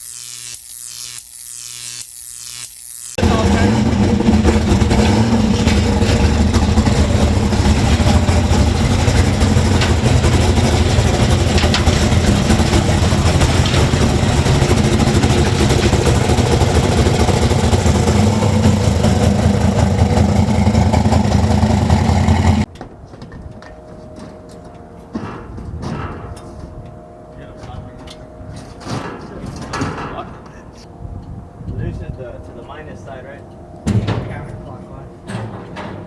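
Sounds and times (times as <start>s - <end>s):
truck engine idling: 3.2s - 22.7s.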